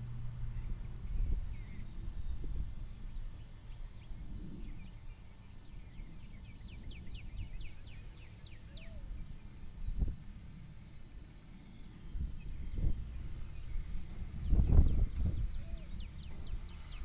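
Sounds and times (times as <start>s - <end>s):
wind rumble on microphone: 0.0s - 17.0s
songbird whistling: 3.8s - 12.9s, 13.5s - 17.0s.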